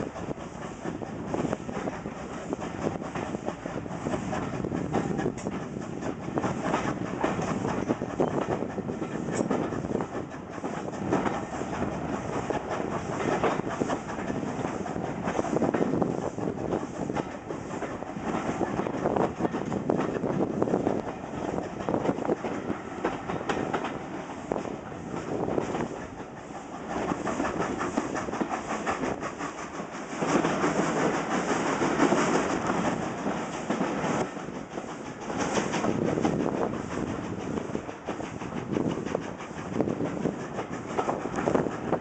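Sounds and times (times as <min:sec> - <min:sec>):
train running noise: 0:00.0 - 0:42.0
wheels clattering over rail joints: 0:04.3 - 0:29.2.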